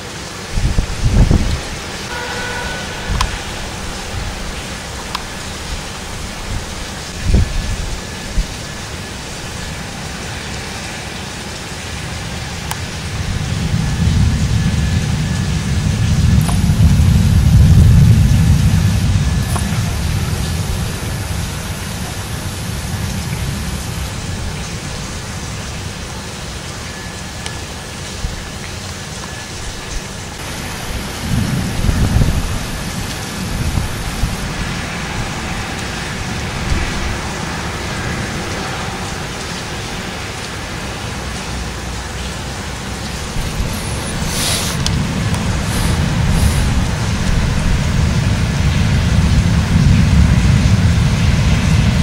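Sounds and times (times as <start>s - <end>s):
heavy rain hiss: 0.0s - 52.0s
deep low rumble: 13.0s - 24.9s, 43.0s - 52.0s.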